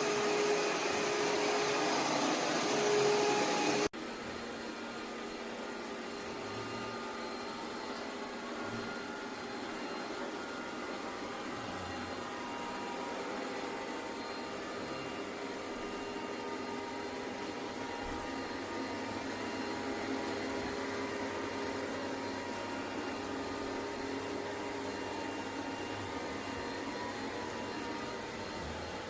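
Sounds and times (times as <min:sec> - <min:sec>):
robot vacuum running: 0:00.0 - 0:03.9.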